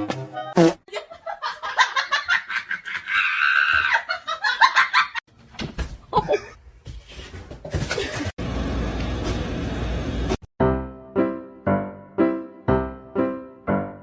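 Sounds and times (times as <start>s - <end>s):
person laughing hard: 6.1s - 6.6s.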